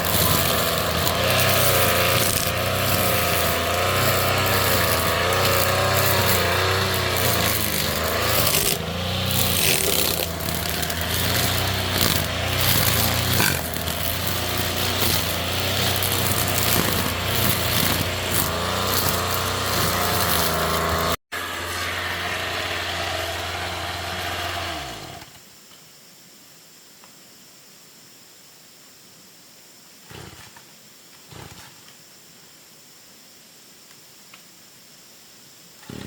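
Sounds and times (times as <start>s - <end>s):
small engine running: 0.0s - 25.3s.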